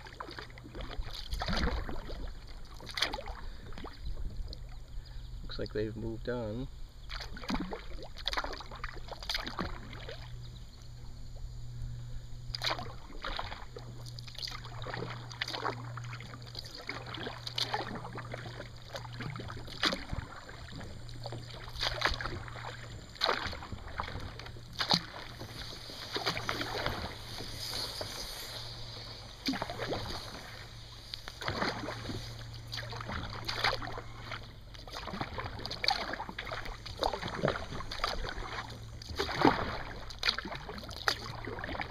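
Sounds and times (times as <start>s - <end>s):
kayak paddle splashing: 0.0s - 41.9s
steady low hum: 0.0s - 41.9s.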